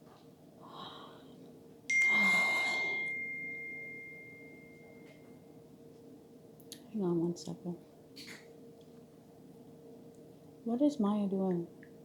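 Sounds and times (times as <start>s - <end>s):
breathy rush of air: 1.9s - 3.2s
tableware clink ringing: 1.9s - 5.2s.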